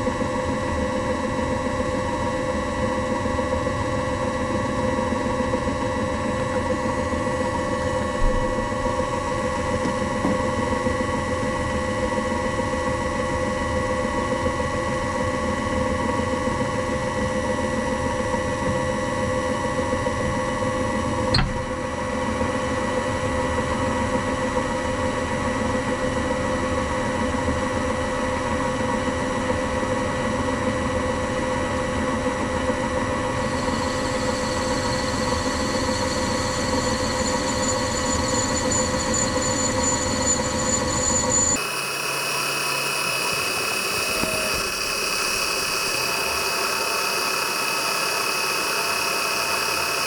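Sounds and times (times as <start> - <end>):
machine tool motor hum and whine: 0.0 - 14.2, 21.3 - 22.0, 32.9 - 50.0
sharp click: 21.3 - 21.7
higher-pitched whine: 21.3 - 21.8, 37.4 - 50.0.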